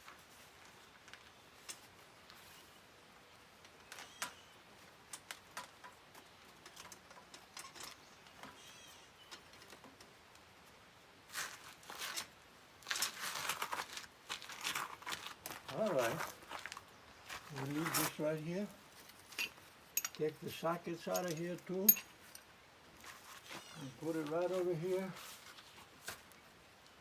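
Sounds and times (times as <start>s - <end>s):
tools clicking and clinking: 19.2s - 20.4s, 21.1s - 22.5s.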